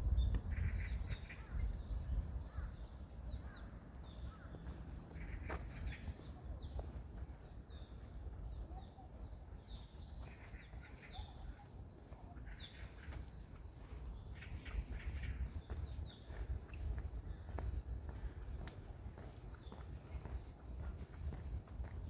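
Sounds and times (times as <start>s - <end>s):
steady low rumble: 0.0s - 6.7s
birds chirping: 0.0s - 22.0s.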